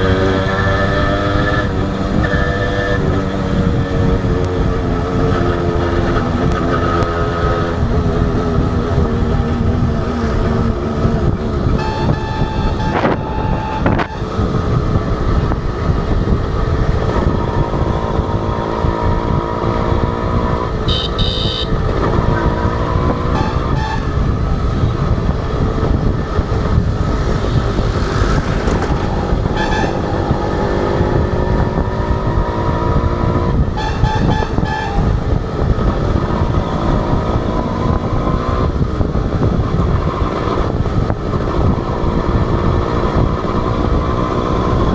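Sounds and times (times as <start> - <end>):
motorcycle engine revving: 0.0 - 44.9
wind and road noise: 0.0 - 44.9
vehicle horn beeping: 11.6 - 14.6, 20.8 - 21.9, 23.1 - 24.4, 29.4 - 30.5, 33.7 - 35.4.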